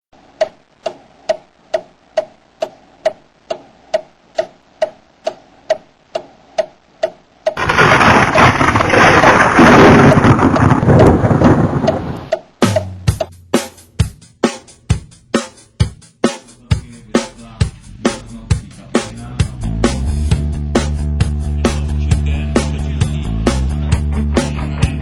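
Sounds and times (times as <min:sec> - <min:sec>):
even ticking: 0:00.2 - 0:13.4
loud rumbling roar: 0:07.6 - 0:12.3.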